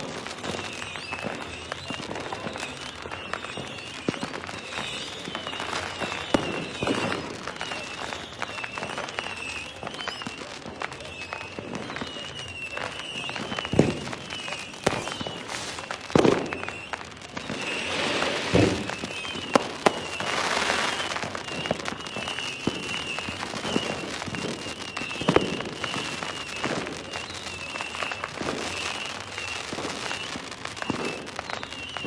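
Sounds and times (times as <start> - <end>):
fireworks booming: 0.0 - 32.0
fireworks hissing crackle: 0.0 - 32.0.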